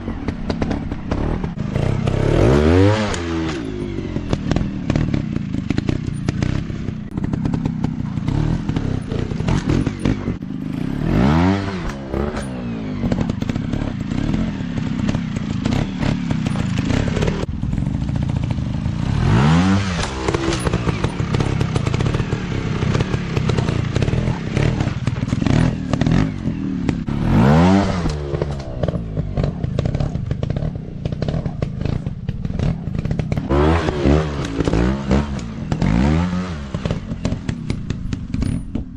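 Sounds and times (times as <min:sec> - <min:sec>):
bikes clattering over rough ground: 0:00.0 - 0:38.9
motorcycle engines revving: 0:00.0 - 0:38.9.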